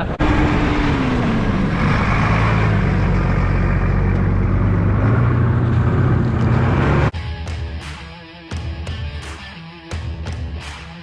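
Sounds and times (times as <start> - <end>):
engine running: 0.0 - 7.1.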